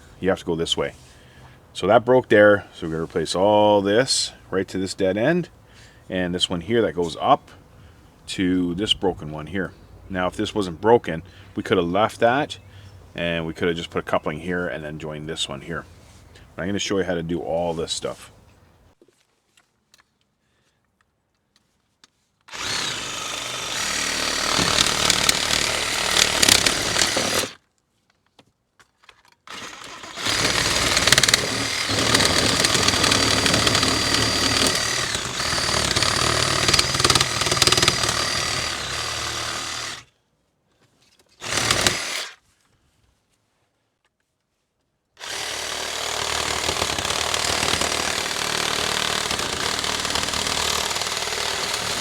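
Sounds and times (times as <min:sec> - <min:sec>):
power saw cutting plastic pipe: 0:22.5 - 0:27.6, 0:29.5 - 0:40.1, 0:41.4 - 0:42.4, 0:45.2 - 0:52.0.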